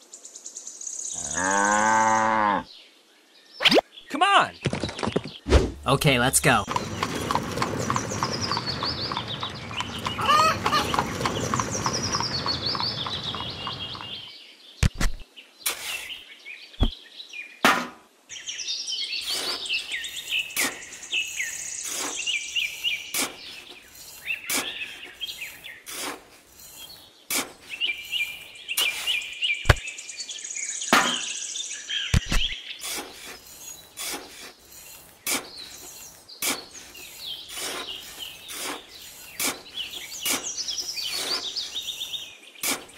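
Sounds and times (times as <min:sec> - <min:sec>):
small birds chirping: 0:02.5 - 0:17.6, 0:18.3 - 0:42.9
steady hiss: 0:19.2 - 0:29.4
metal shovel scooping into tin bucket: 0:32.8 - 0:42.0.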